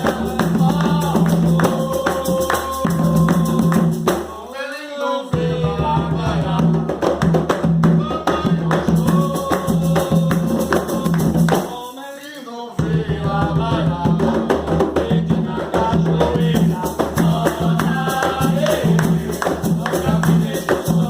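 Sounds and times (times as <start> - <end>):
hand drums: 0.0 - 4.3, 5.4 - 11.8, 12.8 - 21.0
tambourine or shaker: 0.0 - 4.3, 8.1 - 12.4, 16.2 - 21.0
group singing: 0.0 - 21.0.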